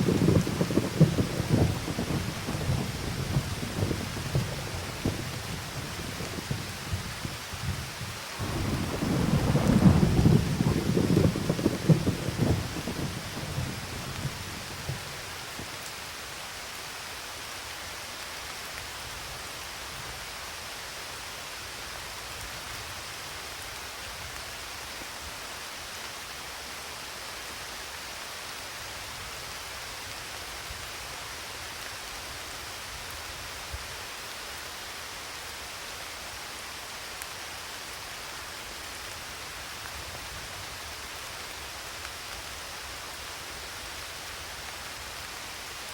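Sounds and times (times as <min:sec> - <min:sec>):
thunder rumbling and crackling: 0:00.0 - 0:15.9
steady rain: 0:00.0 - 0:45.9.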